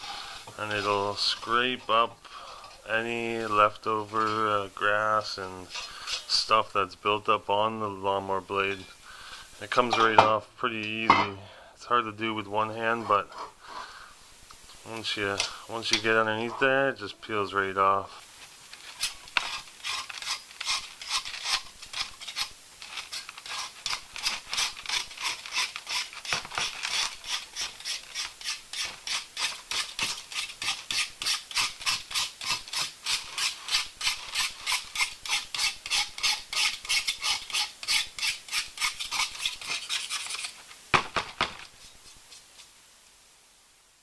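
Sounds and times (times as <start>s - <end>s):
knife scraping metal blade: 5.7s - 6.4s, 18.9s - 40.6s.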